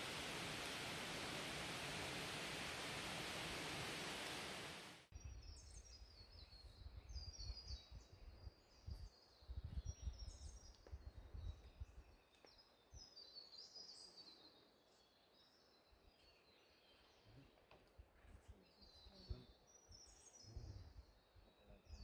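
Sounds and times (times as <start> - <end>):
low rumble: 0.0 - 5.0.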